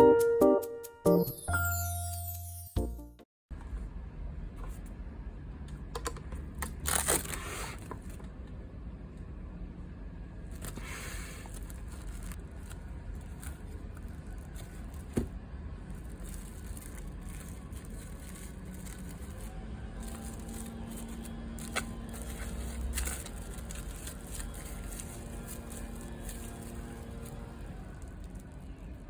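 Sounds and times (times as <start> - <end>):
scraping or rustling: 16.0 - 28.2.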